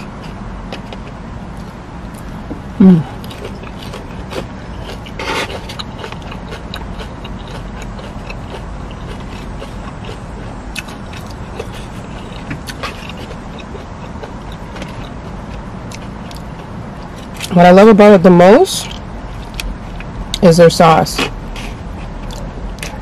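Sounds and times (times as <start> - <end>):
low background rumble: 0.0 - 23.0
chewing crispy fried rolls: 3.0 - 17.6, 18.8 - 20.5, 21.2 - 23.0.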